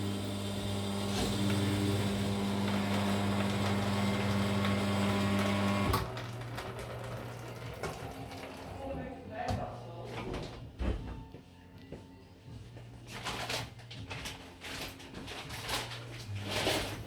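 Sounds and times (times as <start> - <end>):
coffee machine pump humming: 0.0 - 8.8.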